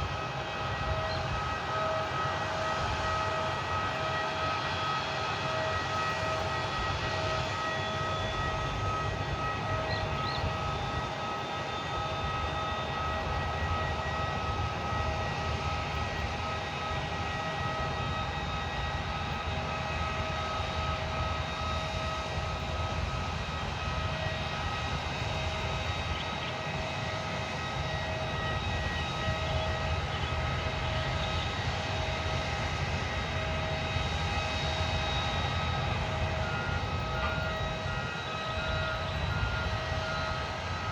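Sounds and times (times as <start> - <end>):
jet engines idling: 0.0 - 40.9.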